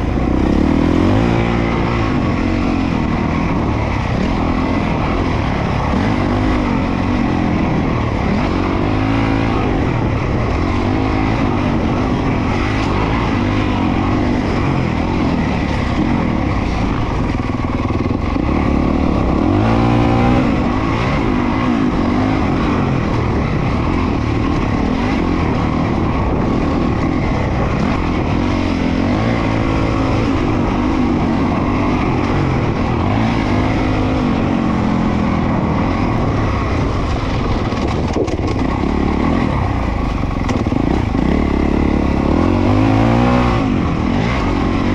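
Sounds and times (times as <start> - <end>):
motocross engine revving: 0.0 - 14.4, 18.5 - 22.7, 38.6 - 44.9.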